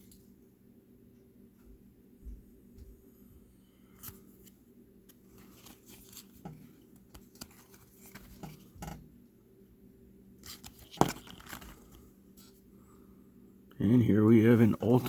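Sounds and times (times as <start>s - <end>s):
trading cards clicking and rustling: 4.0s - 9.0s, 10.4s - 12.0s.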